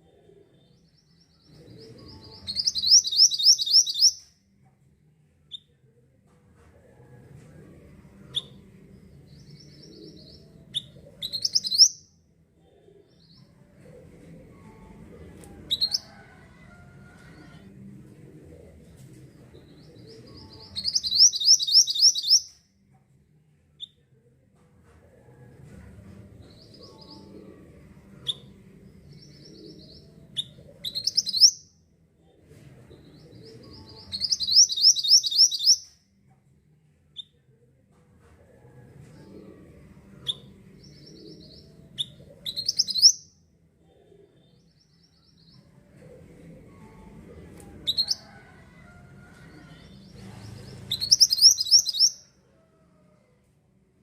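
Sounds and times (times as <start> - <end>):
sharp high bird calls: 2.6 - 4.2, 20.8 - 22.5, 34.2 - 35.9.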